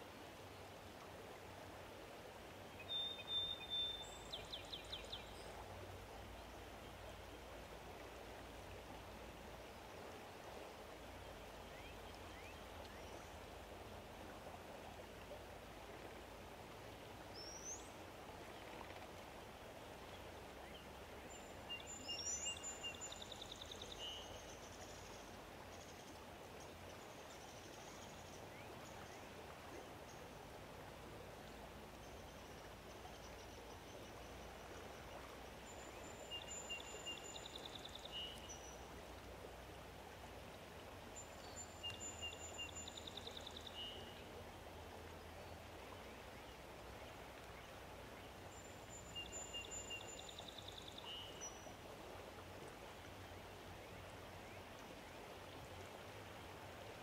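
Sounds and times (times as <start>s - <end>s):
faint outdoor hiss: 0.0s - 57.0s
songbird singing: 2.7s - 8.1s, 11.1s - 13.5s, 17.2s - 19.3s, 20.1s - 30.4s, 31.4s - 39.0s, 41.1s - 51.8s.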